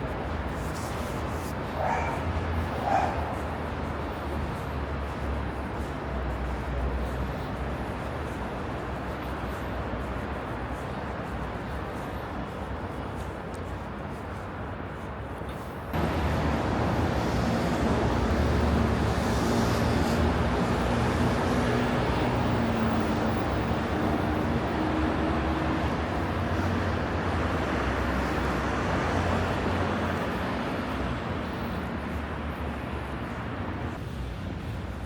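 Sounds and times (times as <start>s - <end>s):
tyre and road noise: 0.0s - 35.0s
vehicle engine running: 16.0s - 25.0s.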